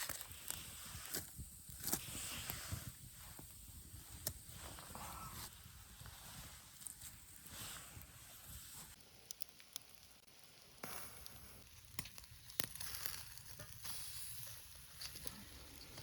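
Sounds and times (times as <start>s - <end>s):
fire pops and crackles: 0.0s - 16.0s
steak sizzling: 9.2s - 16.0s.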